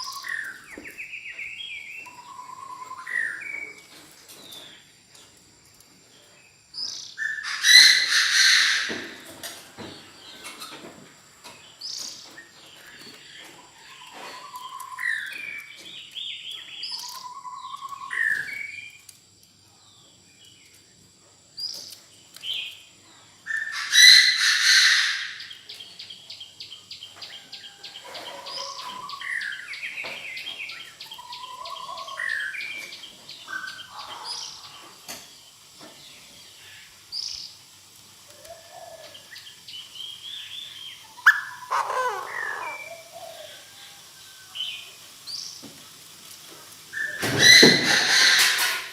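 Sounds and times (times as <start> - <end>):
francolin harsh sliding calls: 6.8 - 9.0, 23.5 - 25.6, 38.6 - 43.8.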